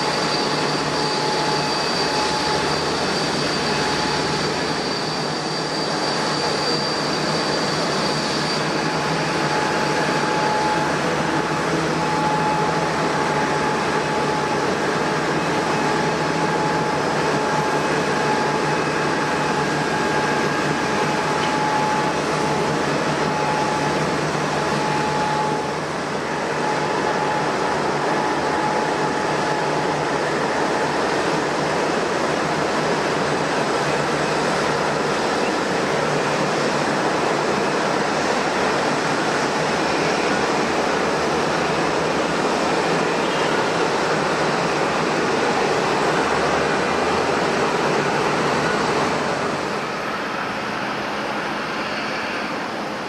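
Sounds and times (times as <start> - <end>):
jet engines rushing with whine: 0.0 - 53.0.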